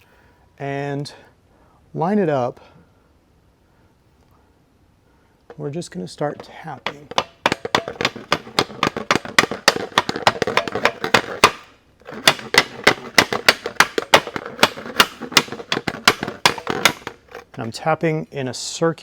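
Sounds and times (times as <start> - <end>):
rapid hammer taps on metal: 6.4 - 11.6.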